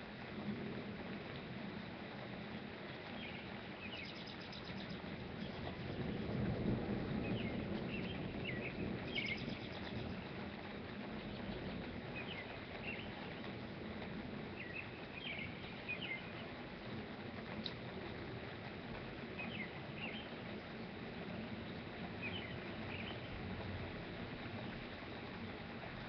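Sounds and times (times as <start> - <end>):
small songbird chirping: 3.2 - 6.5, 7.2 - 10.3, 11.2 - 13.5, 14.6 - 16.5, 19.4 - 20.7, 21.5 - 23.5.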